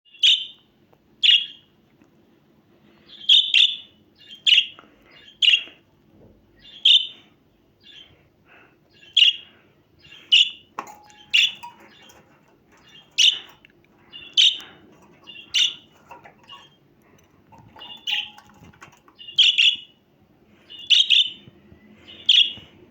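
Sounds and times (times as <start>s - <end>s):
budgerigar chirping: 3.2s - 5.7s, 6.6s - 7.1s, 12.8s - 16.8s, 19.2s - 20.0s, 20.7s - 21.4s.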